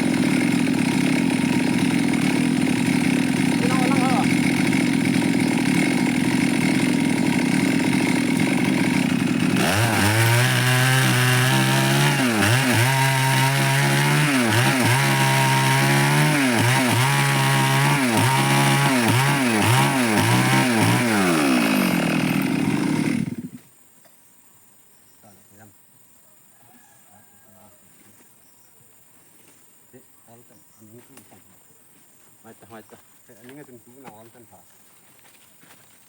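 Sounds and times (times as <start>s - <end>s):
chainsaw cutting wood: 0.0s - 23.7s.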